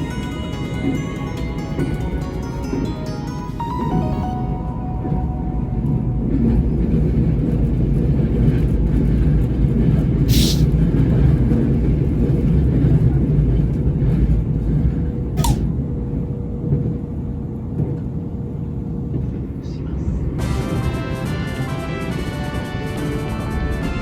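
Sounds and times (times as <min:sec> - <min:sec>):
electric train rumbling: 0:00.0 - 0:24.0
air hisses: 0:10.3 - 0:10.7.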